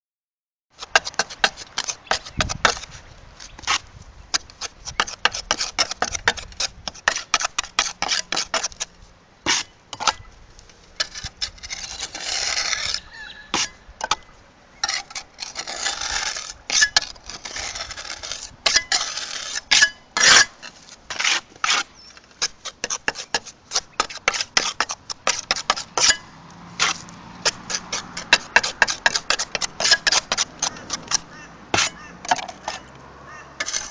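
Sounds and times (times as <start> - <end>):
trowel clicking on roof tiles: 0.8 - 2.9, 3.6 - 8.9, 14.8 - 26.2, 26.8 - 32.9, 33.6 - 33.9.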